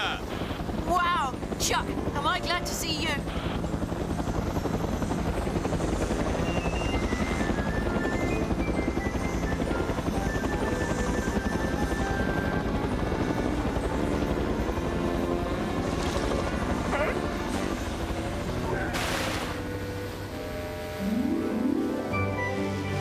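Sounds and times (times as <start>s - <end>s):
helicopter rotor chopping: 0.0s - 21.8s
background music simple tune: 6.2s - 16.7s, 19.7s - 23.0s.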